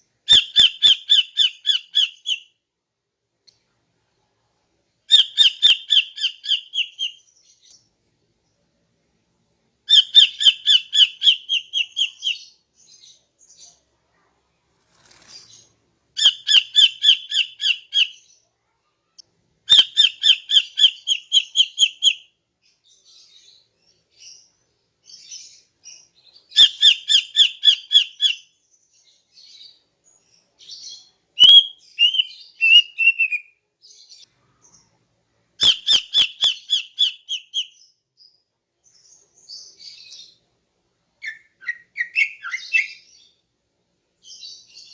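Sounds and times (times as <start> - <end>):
soft bird chirps: 5.1 - 8.6, 9.9 - 40.6, 41.2 - 43.4, 44.2 - 44.9
bird calling sharp notes: 31.4 - 33.4.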